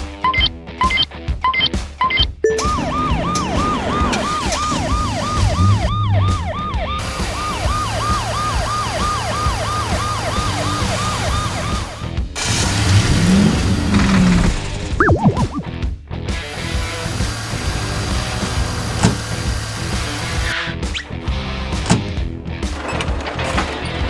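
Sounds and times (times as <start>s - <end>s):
siren yelping: 2.5s - 12.1s.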